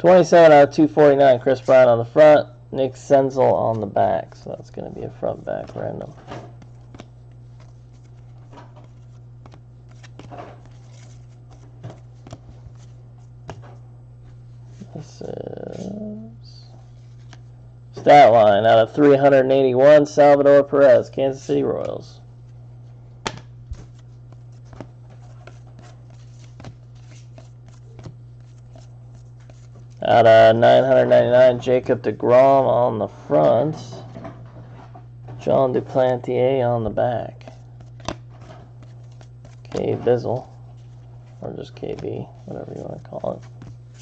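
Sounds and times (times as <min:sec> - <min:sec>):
steady low hum: 0:00.0 - 0:44.0
trading cards rustling and clicking: 0:03.4 - 0:13.8, 0:23.3 - 0:30.3, 0:37.4 - 0:44.0.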